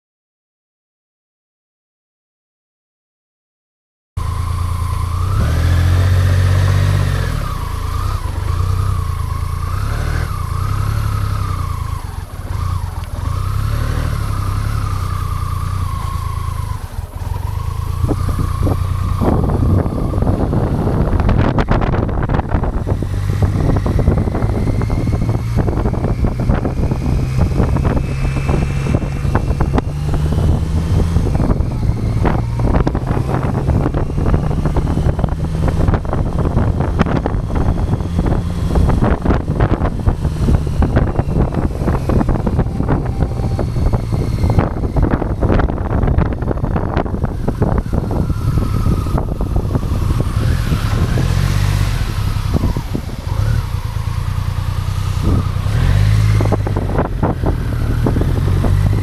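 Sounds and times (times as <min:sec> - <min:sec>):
motorcycle engine running: 0:04.2 - 0:59.0
rough wind buffeting: 0:04.2 - 0:59.0
high whine: 0:24.0 - 0:59.0.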